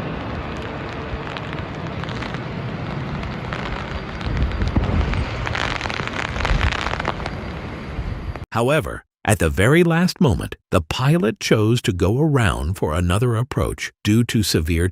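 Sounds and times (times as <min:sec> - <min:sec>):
wind buffeting microphone: 0:00.0 - 0:08.4
low rumble: 0:00.0 - 0:08.5
storm wind and rain: 0:00.0 - 0:08.5.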